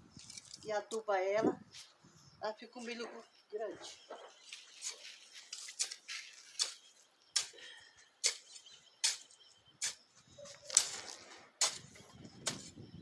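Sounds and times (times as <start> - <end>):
crunching of dry leaves and soil: 2.9 - 12.8.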